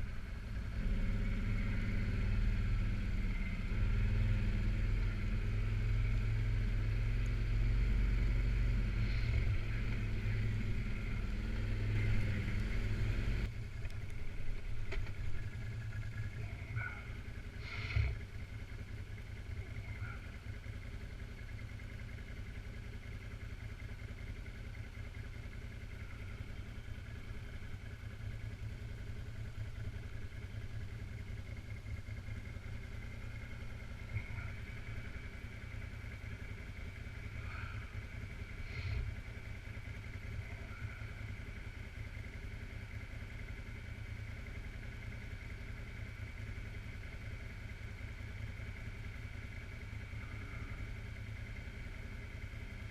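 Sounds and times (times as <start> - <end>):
atv engine running: 0.0 - 52.9.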